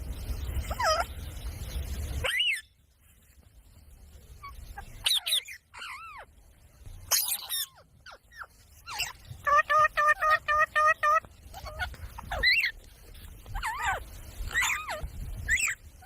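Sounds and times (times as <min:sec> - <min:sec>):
parrot calls: 0:00.6 - 0:01.1, 0:02.2 - 0:02.7, 0:04.4 - 0:06.3, 0:07.1 - 0:12.8, 0:13.5 - 0:15.8.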